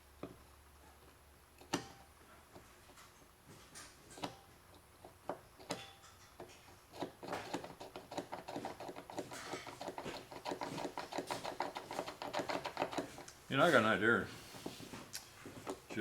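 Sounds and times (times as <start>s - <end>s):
light taps and rattles: 2.5s - 13.8s, 14.5s - 16.0s
small hard parts clicking: 3.8s - 13.4s.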